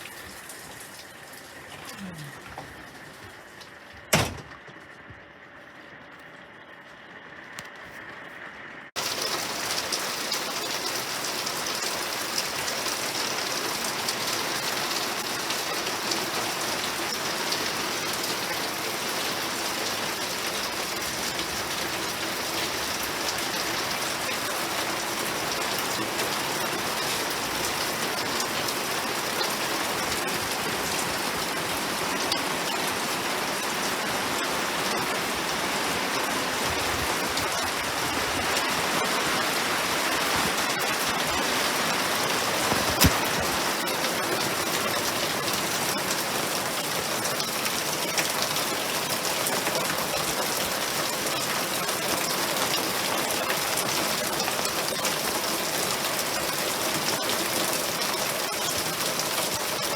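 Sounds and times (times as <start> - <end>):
steady rain: 0.0 - 4.1, 8.9 - 59.9
raindrop hits: 36.2 - 51.2.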